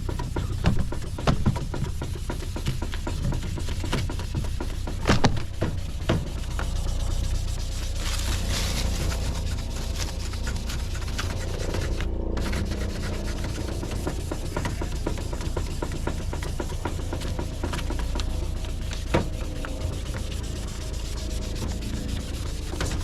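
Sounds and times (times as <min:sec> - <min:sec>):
scratchy sanding strokes: 0:00.0 - 0:23.0
steady low hum: 0:00.0 - 0:23.0.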